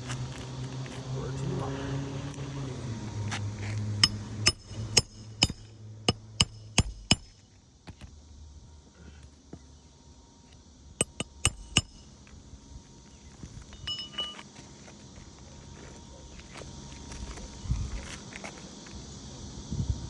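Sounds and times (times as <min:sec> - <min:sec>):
hammer striking roofing nails: 0:04.0 - 0:08.1, 0:11.0 - 0:12.0.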